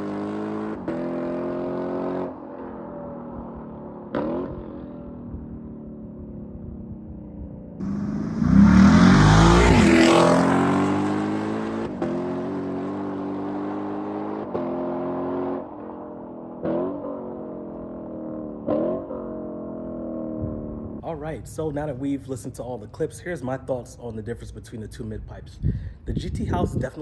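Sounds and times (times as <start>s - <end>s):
car exhaust accelerating: 0.0s - 21.0s
engine throttle blips: 7.8s - 12.6s.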